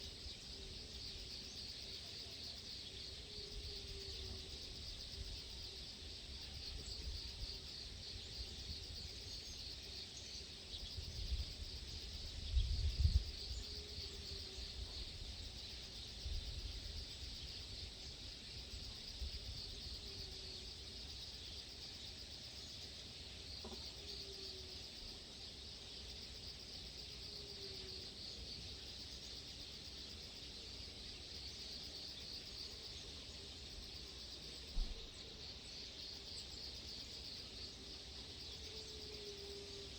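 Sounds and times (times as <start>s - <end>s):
insects chirring: 0.0s - 39.9s
wind rumble on microphone: 10.9s - 13.7s.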